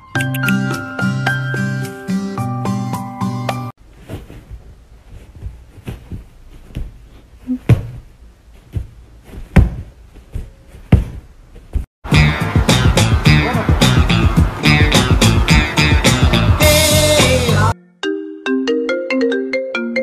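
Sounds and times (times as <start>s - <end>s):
music: 0.0s - 3.7s, 12.0s - 20.0s
knocks and thumps: 4.0s - 11.9s.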